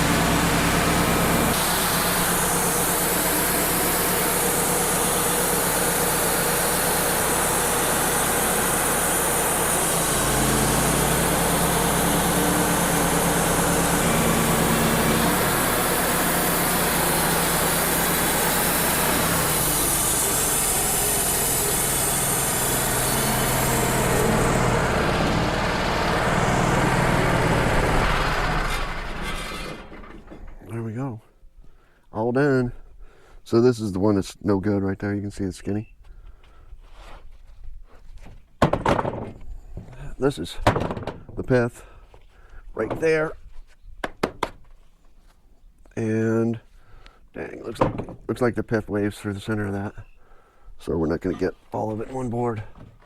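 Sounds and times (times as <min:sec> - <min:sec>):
band saw cutting log: 0:00.0 - 0:30.8, 0:50.8 - 0:52.9
sawmill engine running: 0:00.0 - 0:30.8.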